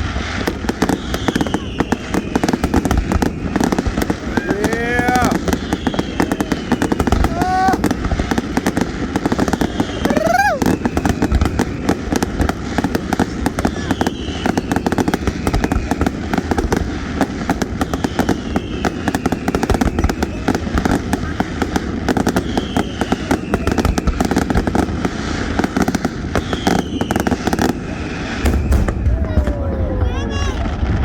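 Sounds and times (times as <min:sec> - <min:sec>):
fireworks crackling and popping: 0:00.0 - 0:31.0
faint falling whistles: 0:00.8 - 0:07.3, 0:26.3 - 0:30.0.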